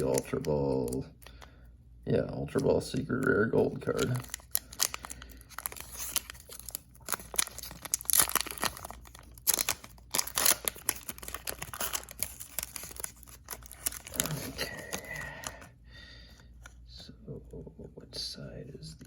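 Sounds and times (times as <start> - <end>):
foil wrapper tearing and crinkling: 0.0 - 1.0, 3.7 - 15.6.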